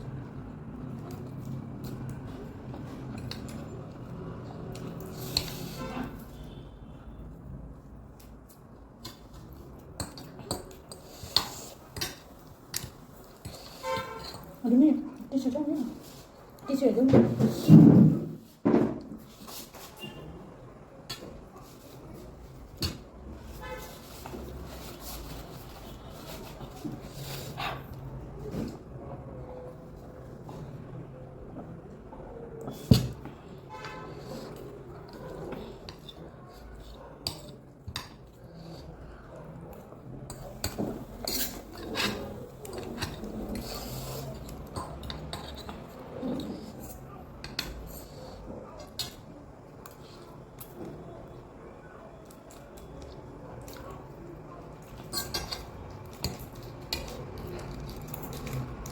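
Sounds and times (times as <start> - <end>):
traffic rumble: 0.0 - 58.9
utensils clinking on a bowl: 33.8 - 50.8, 53.0 - 58.9.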